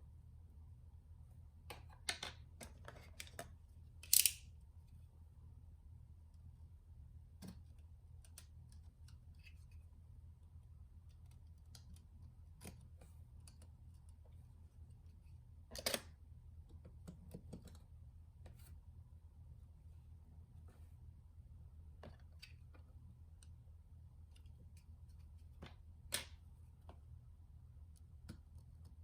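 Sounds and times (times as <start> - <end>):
faint low hum: 0.0 - 29.0
small parts clicking and tapping: 1.7 - 4.5
clatter of small parts: 1.8 - 4.4.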